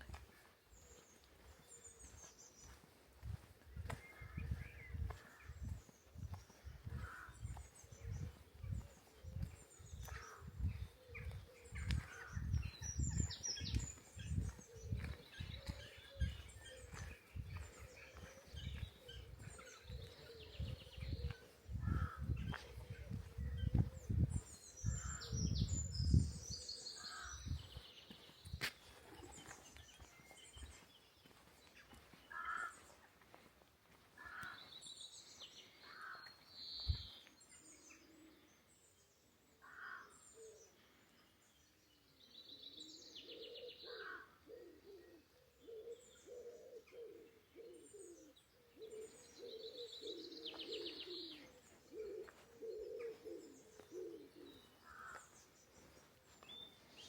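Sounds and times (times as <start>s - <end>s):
songbirds singing and chirping: 0.0s - 57.0s
pigeon cooing: 44.6s - 54.7s.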